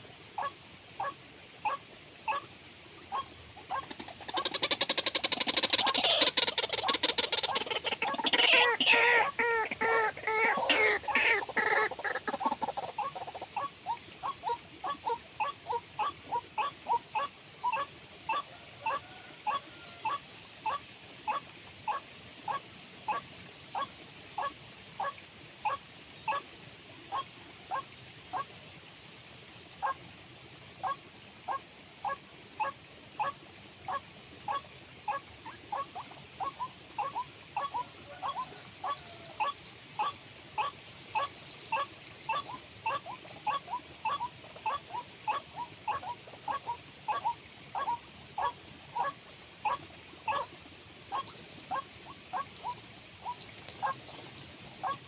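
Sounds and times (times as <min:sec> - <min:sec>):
bird clucking calls: 0:00.4 - 0:02.4, 0:03.1 - 0:23.2, 0:32.6 - 0:50.5.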